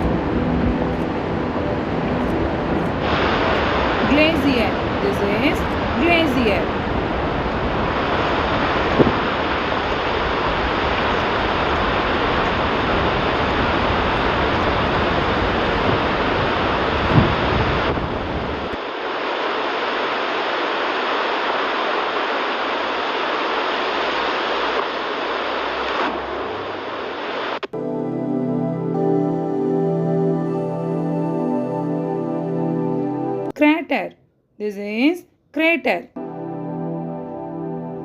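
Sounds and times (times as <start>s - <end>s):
loud outdoor rushing noise: 0.0s - 27.7s.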